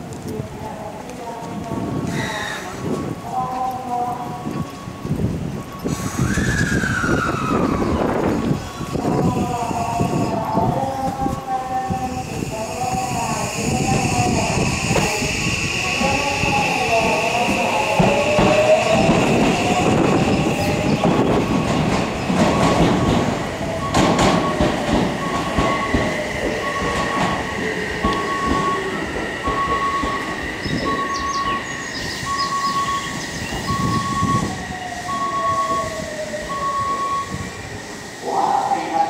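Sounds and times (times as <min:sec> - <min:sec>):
train wheels clattering on rails: 0:13.9 - 0:34.5
short electronic beeps: 0:32.2 - 0:34.5.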